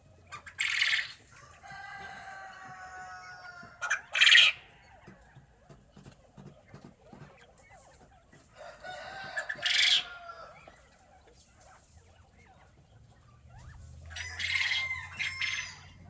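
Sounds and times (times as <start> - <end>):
chickens clucking softly: 0.0 - 16.0
rooster crowing: 1.4 - 3.8, 8.6 - 10.7, 14.1 - 16.0.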